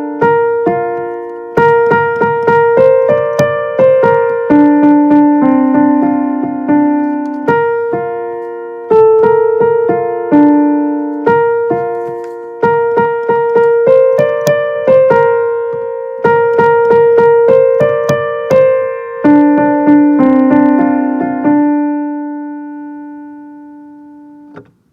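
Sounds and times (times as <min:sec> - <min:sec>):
piano melody over chords: 0:00.0 - 0:24.9.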